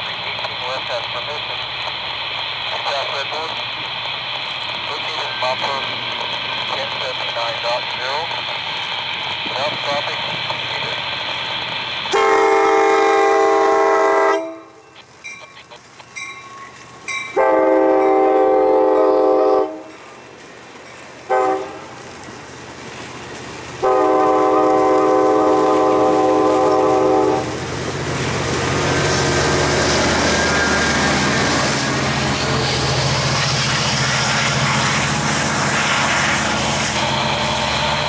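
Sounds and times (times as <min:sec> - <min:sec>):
train rumbling: 0:00.0 - 0:38.0
locomotive air horn blasts: 0:12.1 - 0:14.8, 0:17.3 - 0:19.9, 0:21.3 - 0:21.8, 0:23.8 - 0:27.5.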